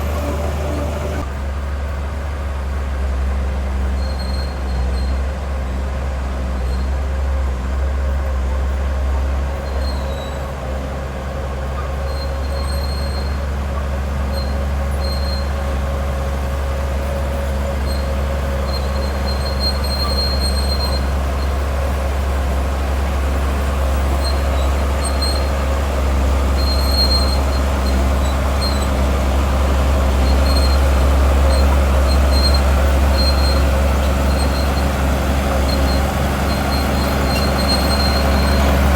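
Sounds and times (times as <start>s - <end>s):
short high-pitched squeals: 0.0s - 1.3s, 24.0s - 38.9s
bulldozer diesel engine rumbling: 0.0s - 38.9s.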